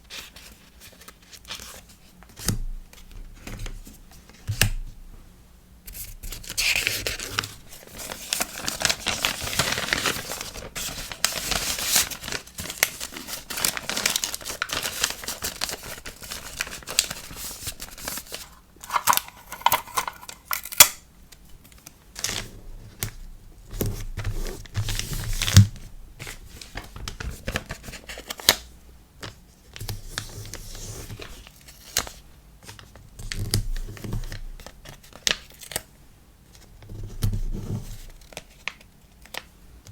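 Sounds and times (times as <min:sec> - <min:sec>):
packaging crinkling and tearing: 0:06.3 - 0:21.0.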